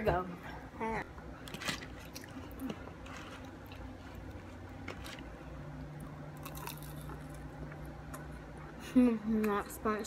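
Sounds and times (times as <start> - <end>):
low steady hum: 0.0 - 10.0
chewing food: 1.4 - 5.3, 6.4 - 8.4.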